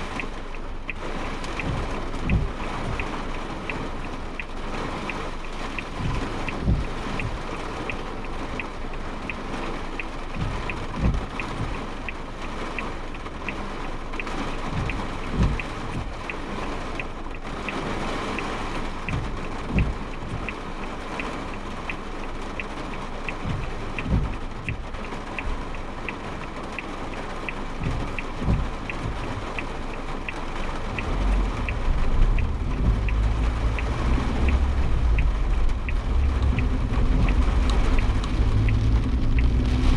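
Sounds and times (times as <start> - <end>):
light ticking: 0.0 - 39.9
rain on car: 0.0 - 39.9
storm wind: 30.7 - 39.9
low rumble: 30.8 - 39.9.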